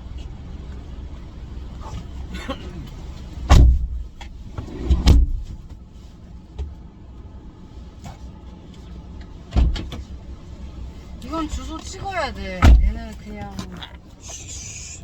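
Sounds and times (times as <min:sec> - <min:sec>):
low steady rumble: 0:00.0 - 0:15.0
heavy thumps into car: 0:03.2 - 0:05.8, 0:09.5 - 0:10.2, 0:11.4 - 0:13.7.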